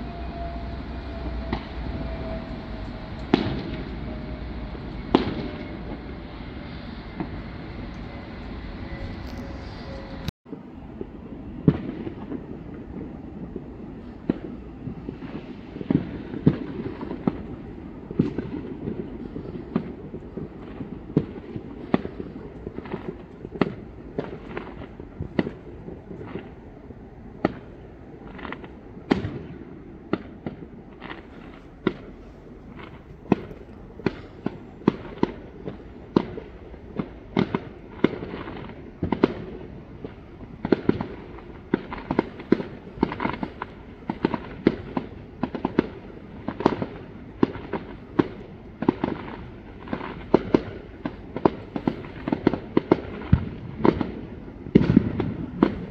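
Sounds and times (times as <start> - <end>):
distant firework bangs and crackles: 0.0 - 55.9
sharp close firework bangs: 1.2 - 4.4, 5.0 - 7.5, 14.0 - 26.6, 27.4 - 55.9.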